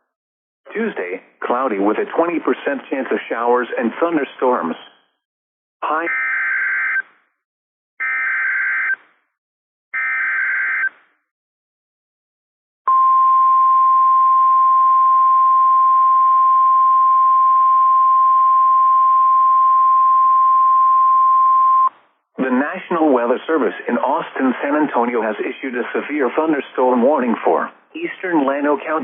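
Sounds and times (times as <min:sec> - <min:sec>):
warning alarm tone: 0:05.9 - 0:07.1, 0:08.0 - 0:09.0, 0:10.0 - 0:11.0.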